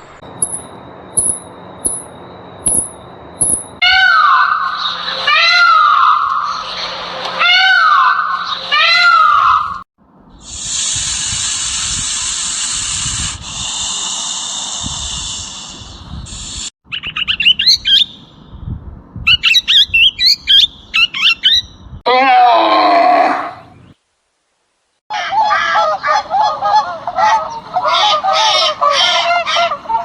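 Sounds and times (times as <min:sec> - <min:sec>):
bird chirping: 0:00.2 - 0:03.8, 0:16.9 - 0:18.4, 0:19.3 - 0:21.8.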